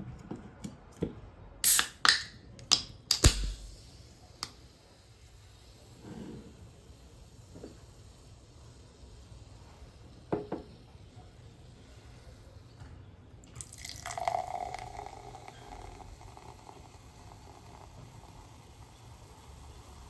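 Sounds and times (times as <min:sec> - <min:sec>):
sharp click: 0:01.7 - 0:03.7
soft drink pouring and fizzing: 0:03.5 - 0:20.0.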